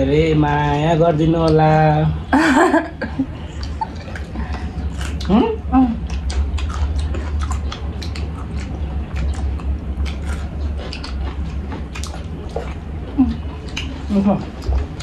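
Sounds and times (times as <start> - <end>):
steady low hum: 0.0 - 15.0
chewing and wet mouth smacks: 3.5 - 15.0.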